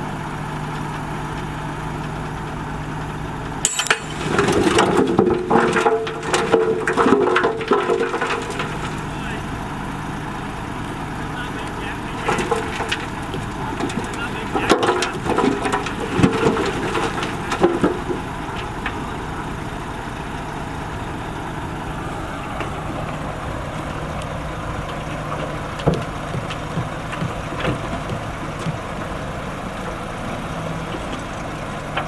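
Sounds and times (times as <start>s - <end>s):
heavy machinery diesel engine: 0.0s - 32.0s
short clunks: 10.8s - 19.5s, 22.2s - 32.0s.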